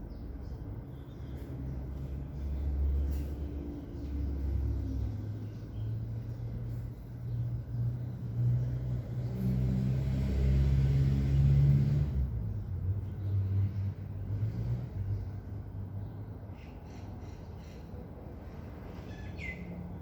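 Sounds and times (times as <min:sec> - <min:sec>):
vehicle engine rumbling: 0:00.0 - 0:19.1.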